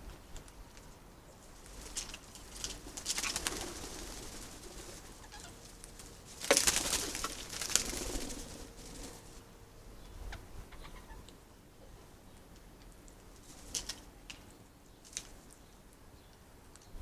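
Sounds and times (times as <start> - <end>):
pigeons flapping wings: 1.6 - 9.4, 13.4 - 14.1.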